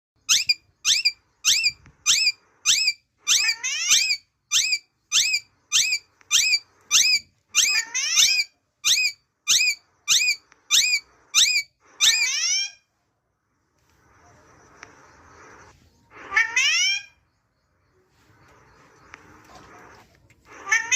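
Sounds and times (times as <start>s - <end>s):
faint background noise: 0.2s - 20.9s
parrot squawking: 0.3s - 12.9s, 16.1s - 17.2s, 20.5s - 20.9s.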